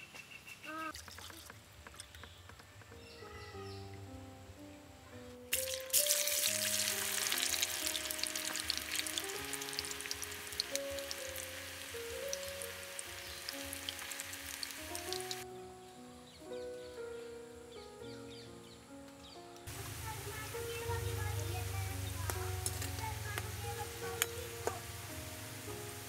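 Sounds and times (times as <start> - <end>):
instrumental background music: 2.8 - 26.0
food frying in hot oil: 5.5 - 15.4, 19.7 - 26.0.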